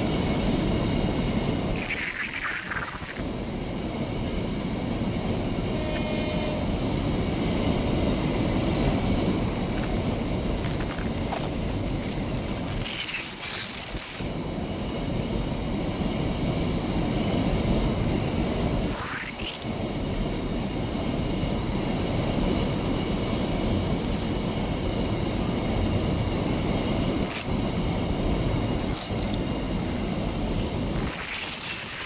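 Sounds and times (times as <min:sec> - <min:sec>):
train wheels rumbling on rails: 0:03.3 - 0:19.0.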